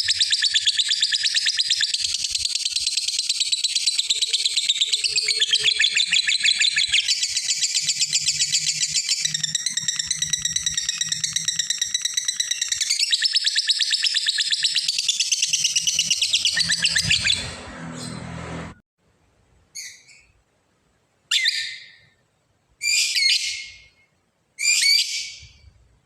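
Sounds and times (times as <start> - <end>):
bird chattering trill: 0.0 - 17.6.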